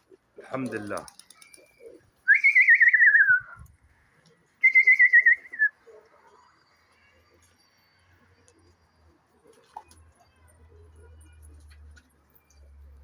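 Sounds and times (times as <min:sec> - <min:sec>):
person whistling trilled phrases: 0:02.3 - 0:03.6, 0:04.6 - 0:05.7.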